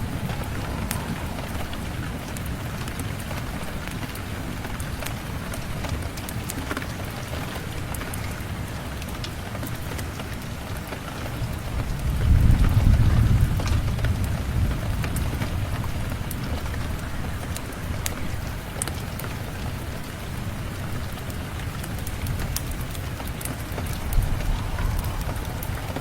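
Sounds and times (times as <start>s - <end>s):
low roll of thunder: 0.0s - 6.3s, 11.1s - 18.0s, 21.8s - 26.0s
rain falling: 0.0s - 26.0s.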